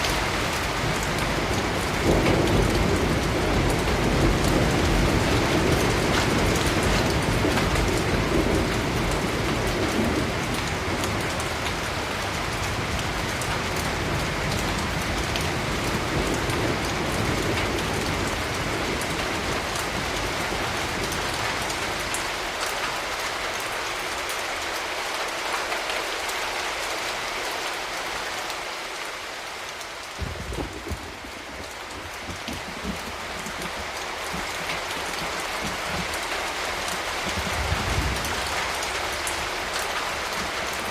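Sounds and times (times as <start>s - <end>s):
steady rain falling: 0.0s - 40.9s
thunder rumble: 30.2s - 36.1s, 37.2s - 38.9s.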